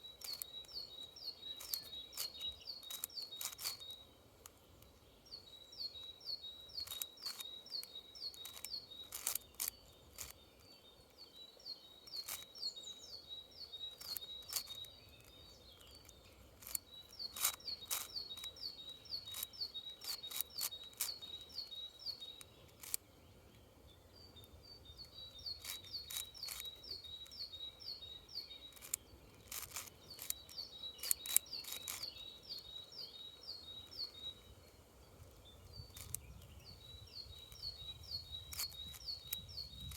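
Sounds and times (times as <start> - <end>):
bird chirping repeatedly: 0.0 - 39.9
plastic puzzle cube clicks: 0.2 - 0.8, 1.6 - 4.6, 6.8 - 10.4, 12.1 - 12.6, 13.9 - 21.7, 22.3 - 23.0, 25.0 - 27.6, 28.6 - 32.2, 35.9 - 36.5, 37.4 - 39.9.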